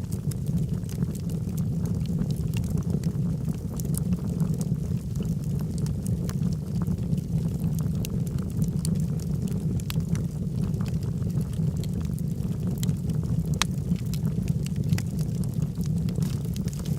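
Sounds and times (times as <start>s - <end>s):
fire low rumble: 0.0s - 16.9s
logs crackling and popping: 0.0s - 16.9s.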